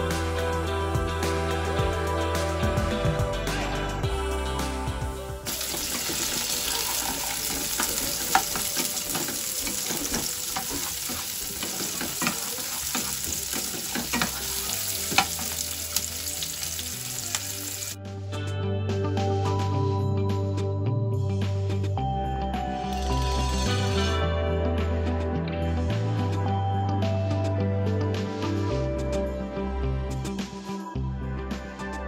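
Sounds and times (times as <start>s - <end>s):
background music: 0.0s - 32.0s
vegetables sizzling in hot oil: 5.5s - 18.0s.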